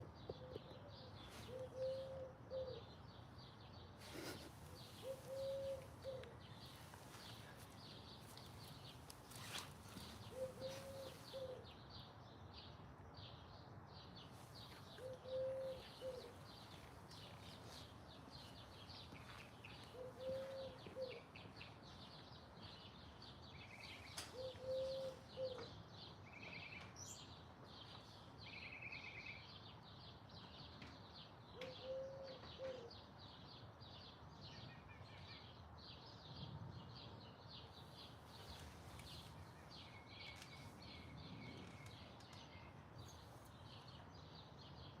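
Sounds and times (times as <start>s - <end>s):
birds chirping and twittering: 0.0s - 45.0s
low bird call: 0.4s - 2.9s, 4.0s - 7.6s, 9.3s - 11.6s, 14.8s - 17.9s, 19.2s - 21.6s, 23.8s - 25.7s.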